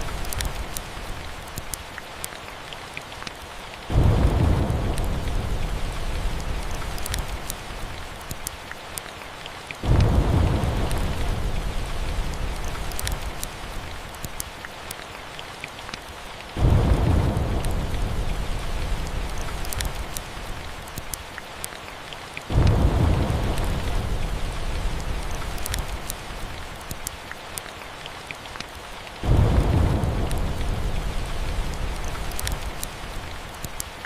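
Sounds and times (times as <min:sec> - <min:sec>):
light sharp crackles: 0:00.0 - 0:34.0
steady rain: 0:00.0 - 0:34.0
thunder rumbling: 0:03.9 - 0:08.1, 0:09.8 - 0:14.1, 0:16.6 - 0:20.7, 0:22.5 - 0:26.8, 0:29.2 - 0:33.6.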